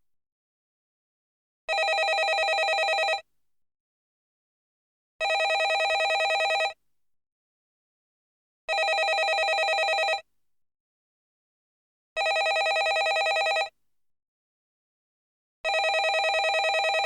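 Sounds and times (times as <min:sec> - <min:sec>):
telephone bell ringing: 0:01.7 - 0:03.2, 0:05.2 - 0:06.8, 0:08.7 - 0:10.2, 0:12.2 - 0:13.7, 0:15.7 - 0:17.0.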